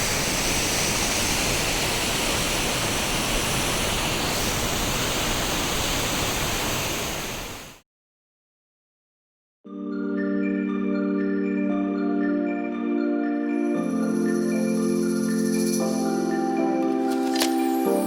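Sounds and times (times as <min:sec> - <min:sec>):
waterfall rushing: 0:00.0 - 0:07.8
marimba-like mallet music: 0:09.7 - 0:18.0.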